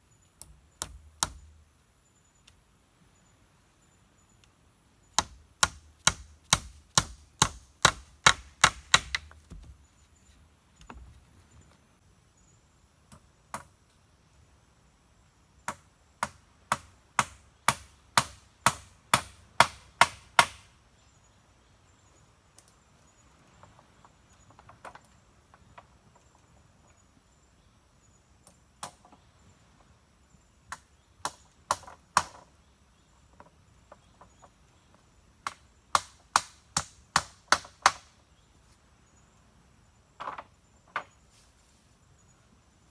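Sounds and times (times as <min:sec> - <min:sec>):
wood being chopped: 0:00.4 - 0:01.6, 0:05.2 - 0:09.8, 0:15.7 - 0:20.7, 0:35.4 - 0:38.1.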